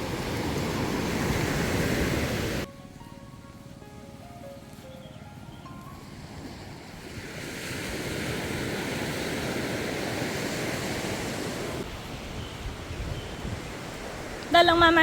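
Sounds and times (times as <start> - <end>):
water rushing: 0.0 - 2.7, 5.9 - 15.0.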